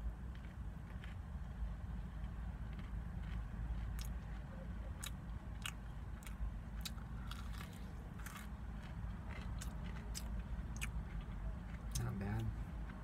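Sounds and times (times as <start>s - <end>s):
steady low rumble: 0.0s - 13.0s
crisp crunching bites: 5.0s - 10.9s.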